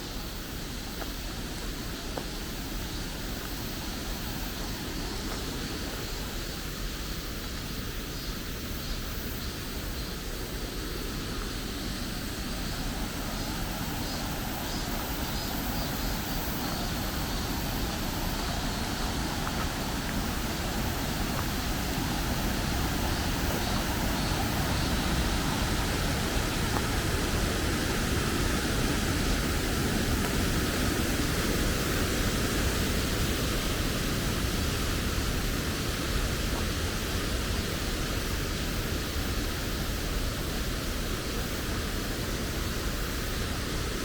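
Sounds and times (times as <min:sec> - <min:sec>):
steady rushing noise: 0:08.6 - 0:44.0.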